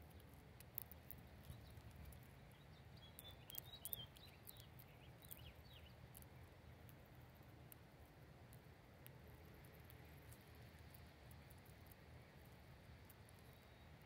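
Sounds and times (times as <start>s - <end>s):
small clicks: 0.0s - 2.4s, 3.0s - 7.0s
faint bird chirps: 0.1s - 6.8s, 13.3s - 14.0s.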